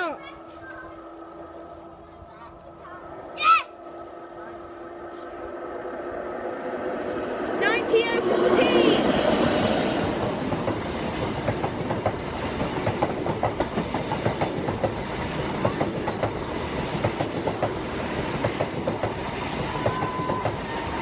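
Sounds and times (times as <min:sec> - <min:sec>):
train rumble: 0:00.0 - 0:21.0
train wheels clicking: 0:09.0 - 0:21.0.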